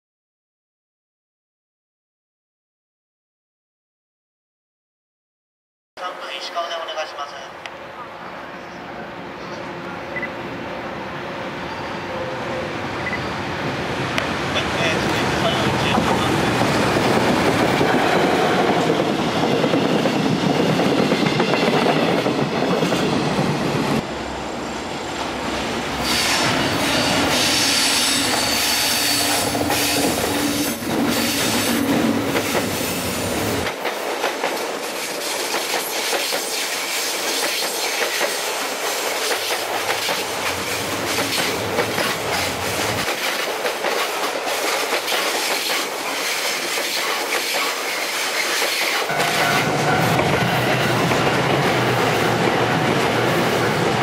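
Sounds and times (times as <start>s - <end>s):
freight train rolling past: 6.2s - 54.0s
train wheels clicking over rail joints: 33.6s - 50.5s.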